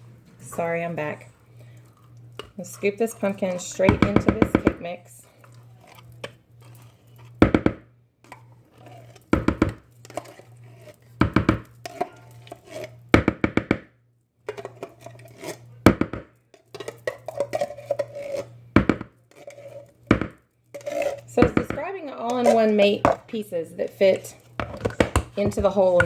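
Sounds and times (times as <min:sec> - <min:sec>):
low steady hum: 0:00.0 - 0:26.0
spoon scraping can: 0:01.6 - 0:07.4, 0:08.3 - 0:13.0, 0:14.5 - 0:15.7, 0:16.6 - 0:20.0, 0:20.7 - 0:26.0
spoon knocking on pitcher: 0:03.9 - 0:04.8, 0:07.4 - 0:07.8, 0:09.4 - 0:09.8, 0:11.2 - 0:11.7, 0:13.2 - 0:13.9, 0:15.9 - 0:16.3, 0:18.8 - 0:19.1, 0:20.1 - 0:20.4, 0:21.4 - 0:21.8, 0:23.0 - 0:23.3.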